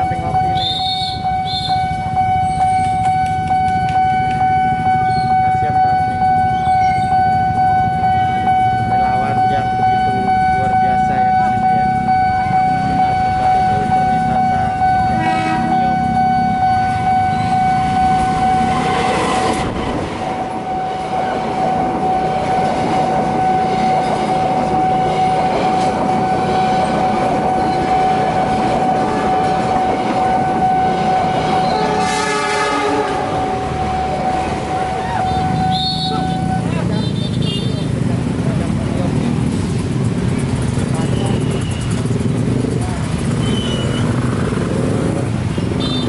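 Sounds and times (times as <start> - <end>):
train wheels rumbling: 0.0 - 45.8
crossing warning siren: 0.0 - 46.0
train horn: 15.1 - 15.8, 25.0 - 36.7.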